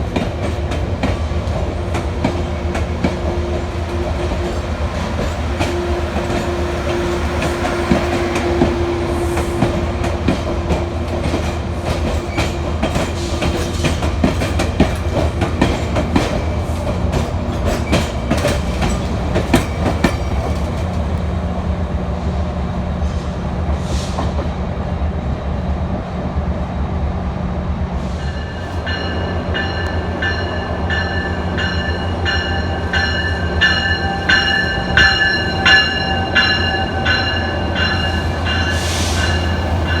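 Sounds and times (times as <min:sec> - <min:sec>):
wheels clacking over rails: 0:00.0 - 0:21.7
train engine rumble: 0:00.0 - 0:40.0
locomotive bell ringing: 0:28.3 - 0:40.0.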